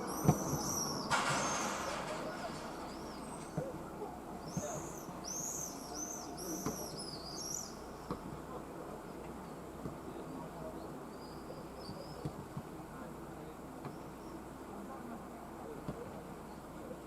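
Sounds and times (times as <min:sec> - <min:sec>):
swifts screeching: 0:00.0 - 0:03.6
city traffic hum: 0:00.0 - 0:17.0.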